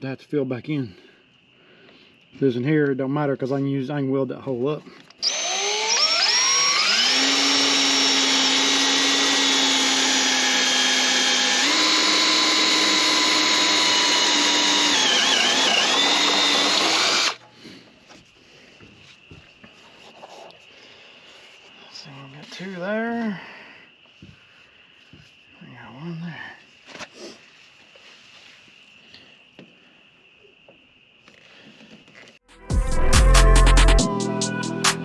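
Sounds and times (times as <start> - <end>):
electric drill whining: 5.2 - 17.4.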